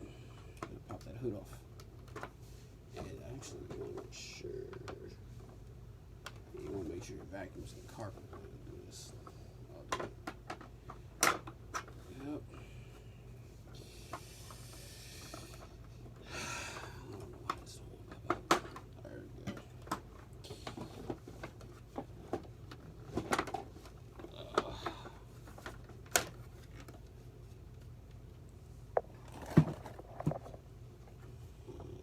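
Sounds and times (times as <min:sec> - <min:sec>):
low steady hum: 0:00.0 - 0:32.0
plastic parts clicking and knocking: 0:09.8 - 0:12.0, 0:17.4 - 0:27.1
plastic scraping: 0:28.9 - 0:30.7.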